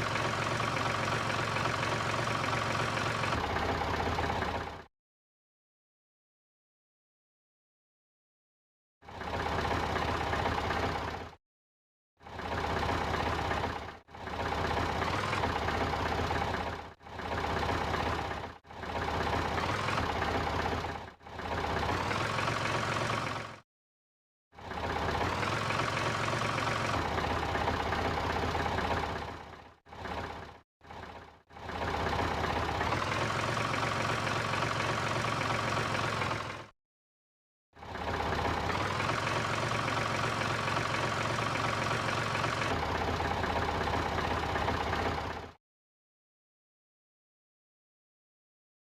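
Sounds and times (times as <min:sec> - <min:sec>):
mini truck engine running: 0:00.0 - 0:04.9, 0:09.1 - 0:11.4, 0:12.2 - 0:23.6, 0:24.6 - 0:36.7, 0:37.8 - 0:45.6.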